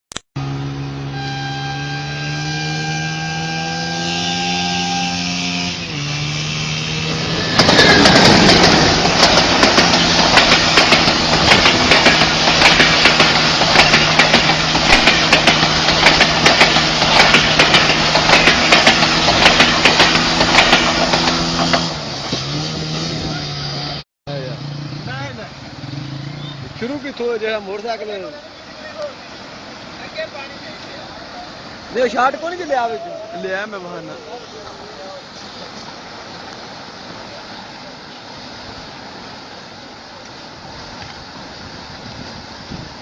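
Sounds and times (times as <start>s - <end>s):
vehicle engine humming: 0.4s - 37.0s
loud rushing clattering noise: 6.2s - 23.3s.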